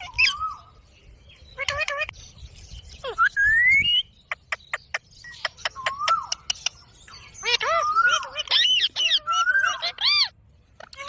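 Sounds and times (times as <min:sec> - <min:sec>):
parakeet calling: 0:03.0 - 0:11.0.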